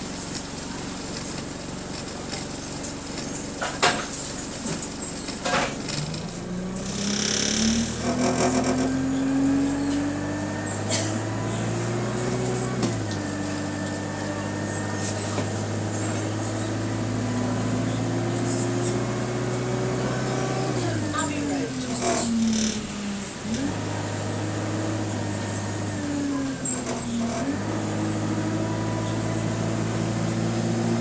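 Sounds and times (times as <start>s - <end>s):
bus engine accelerating whine: 0.0s - 31.0s.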